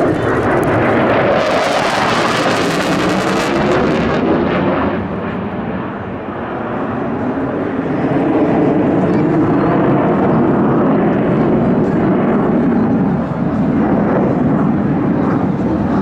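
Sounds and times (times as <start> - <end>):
fighter jet engine roar: 0.0 - 16.0.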